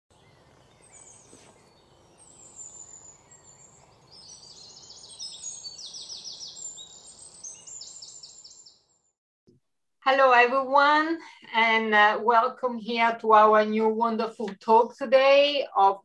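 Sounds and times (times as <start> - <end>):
birds chirping and trilling: 0.1 - 9.1.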